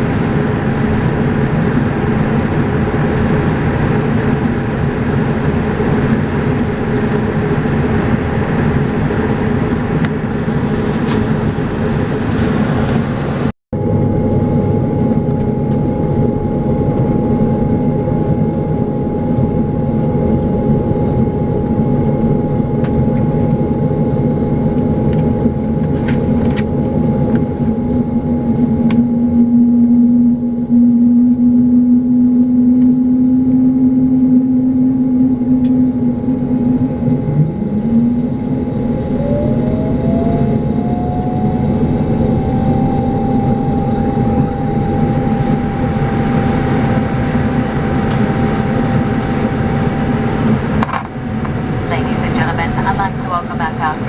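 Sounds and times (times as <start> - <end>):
low hum: 0.0 - 54.0
steady humming tone: 0.0 - 54.0
turboprop engines droning: 0.0 - 54.0.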